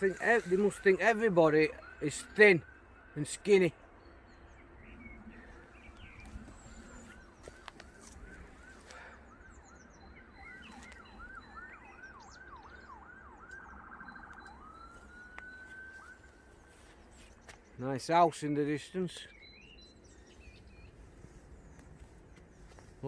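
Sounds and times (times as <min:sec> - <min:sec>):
bird whistling song: 0:19.2 - 0:21.0.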